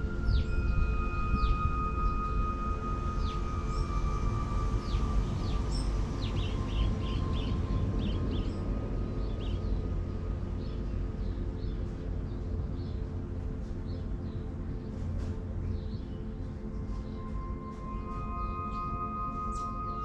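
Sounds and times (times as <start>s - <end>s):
held ringing tone: 0.0s - 7.1s
steady low rumble: 0.0s - 20.0s
small birds chirping: 4.9s - 8.6s.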